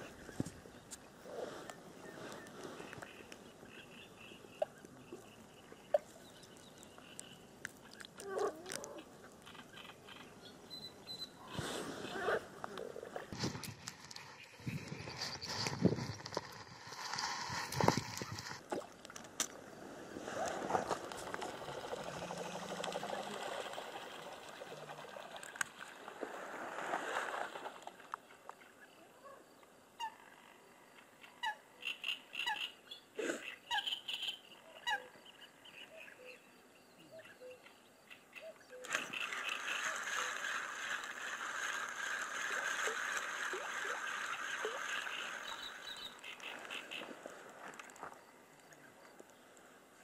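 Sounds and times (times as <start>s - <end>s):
birds calling: 31.2s - 41.4s, 44.0s - 47.2s.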